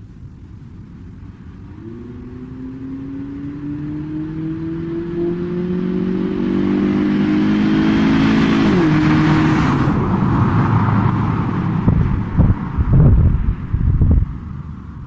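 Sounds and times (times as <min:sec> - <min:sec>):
road noise: 0:00.0 - 0:15.0
car engine accelerating: 0:01.1 - 0:15.0
wind buffeting microphone: 0:08.0 - 0:15.0.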